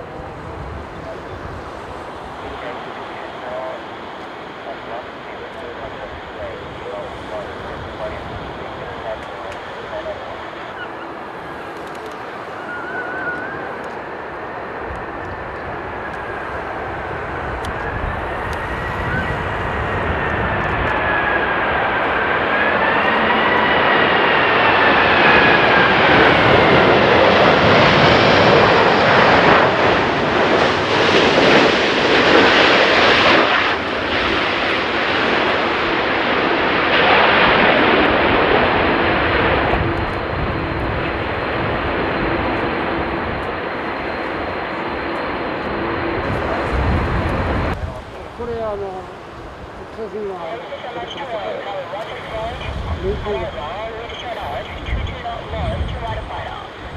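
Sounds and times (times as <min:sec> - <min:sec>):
jet airliner flying past: 0:00.0 - 0:56.9.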